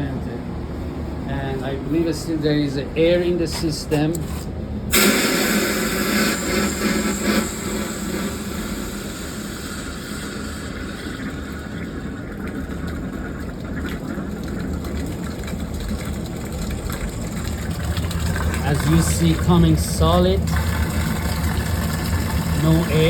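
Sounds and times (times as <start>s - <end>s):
water sputtering from outlet: 4.9s - 23.0s.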